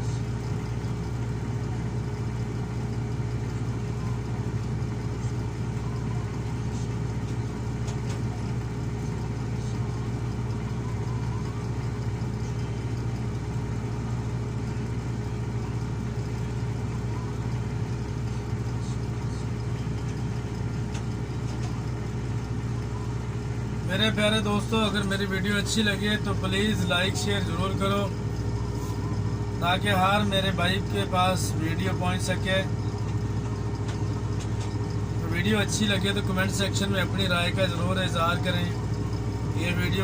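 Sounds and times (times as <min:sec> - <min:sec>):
heavy diesel engine running: 0:00.0 - 0:40.0.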